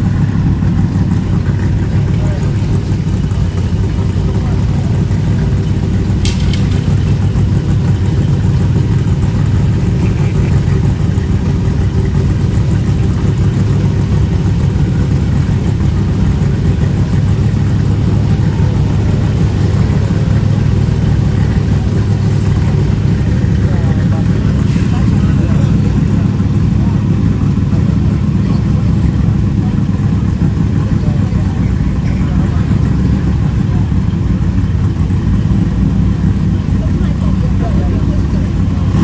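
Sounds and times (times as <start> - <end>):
car engine running: 0.0 - 39.0
short click: 6.2 - 7.1.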